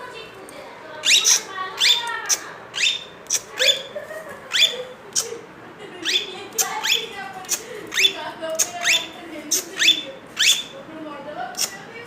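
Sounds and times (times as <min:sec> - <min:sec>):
parrot whistled chirps: 0:01.0 - 0:03.9, 0:04.5 - 0:04.8, 0:06.0 - 0:07.1, 0:07.9 - 0:10.8.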